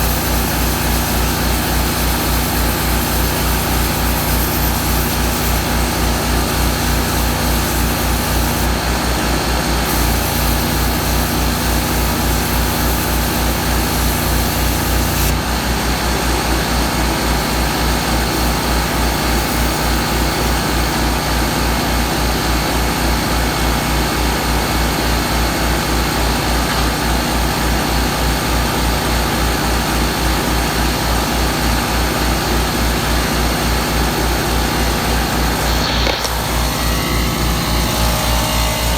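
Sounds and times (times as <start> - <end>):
air compressor pumping: 0.0 - 22.1, 24.8 - 28.4, 31.2 - 38.9
welder-generator running: 0.0 - 38.9
high hiss: 16.9 - 21.0.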